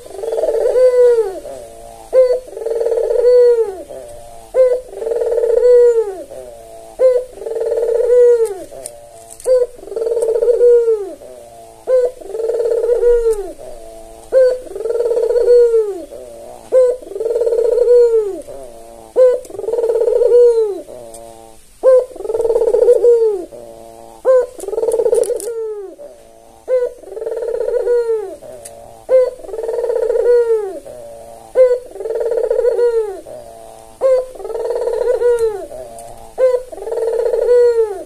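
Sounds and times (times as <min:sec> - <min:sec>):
dove cooing: 0:00.0 - 0:38.0.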